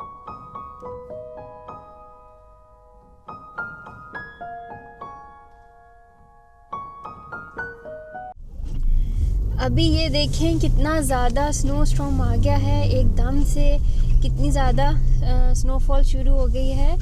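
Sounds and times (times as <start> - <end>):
soft piano melody: 0.0 - 8.4.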